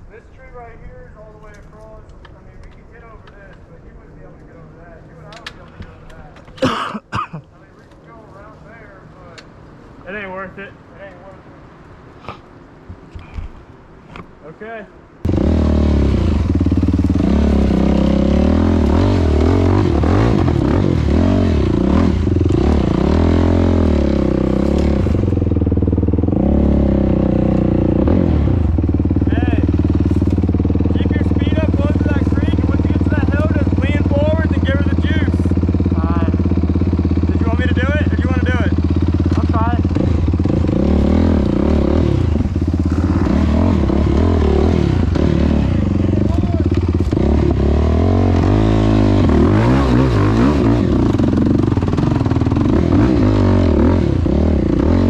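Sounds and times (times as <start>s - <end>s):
quad engine running: 15.3s - 55.0s.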